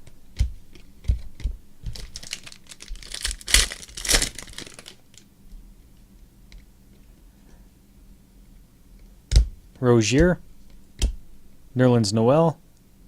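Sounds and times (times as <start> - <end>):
packaging crinkling: 1.9 - 5.3.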